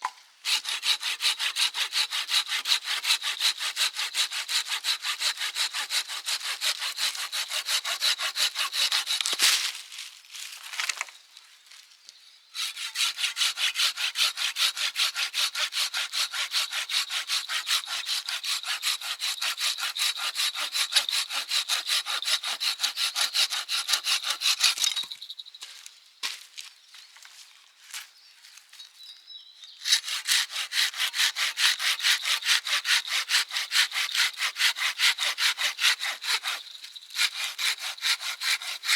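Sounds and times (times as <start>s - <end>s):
hand saw cutting wood: 0.4s - 9.7s, 12.6s - 25.1s, 29.8s - 38.9s.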